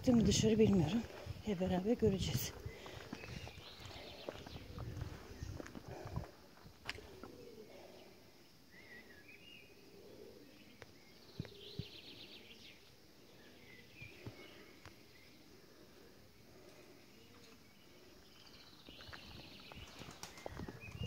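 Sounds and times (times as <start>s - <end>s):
bird chirps: 8.7s - 15.4s, 17.2s - 21.0s.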